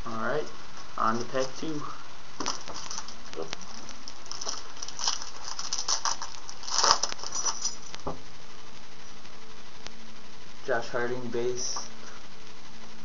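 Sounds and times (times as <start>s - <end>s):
foil wrapper tearing and crinkling: 2.4s - 8.0s.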